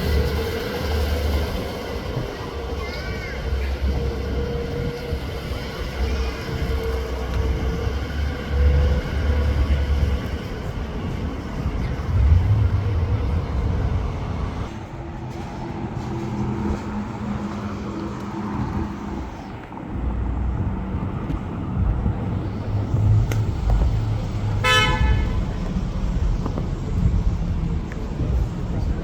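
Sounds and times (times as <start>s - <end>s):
car engines running: 4.8s - 29.0s
car horn toot: 24.6s - 25.4s.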